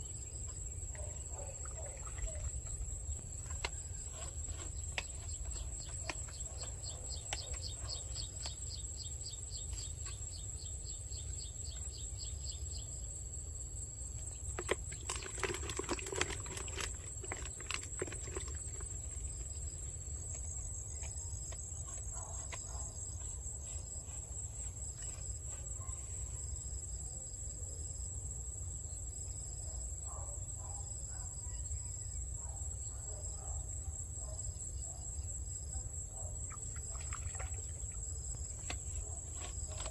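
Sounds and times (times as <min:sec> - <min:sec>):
insects trilling: 0:00.0 - 0:39.9
insect chirping in fast pulses: 0:34.2 - 0:39.8.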